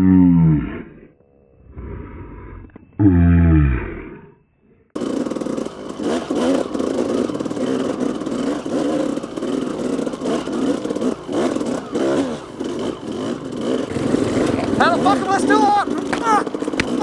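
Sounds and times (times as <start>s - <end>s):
dirt bike engine revving: 5.0s - 17.0s.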